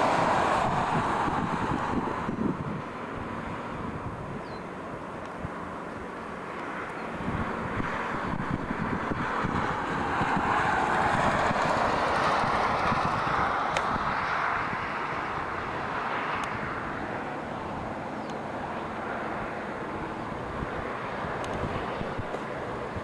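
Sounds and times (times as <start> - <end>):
freight train rolling past: 0.0 - 3.4, 9.2 - 14.6.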